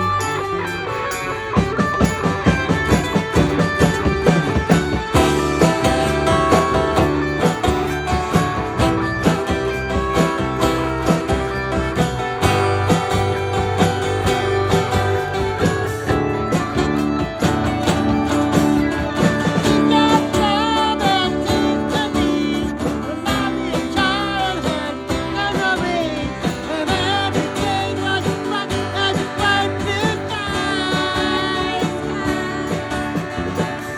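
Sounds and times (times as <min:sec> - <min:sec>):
live band playing: 0:00.0 - 0:33.9
person singing with vibrato: 0:19.6 - 0:33.9.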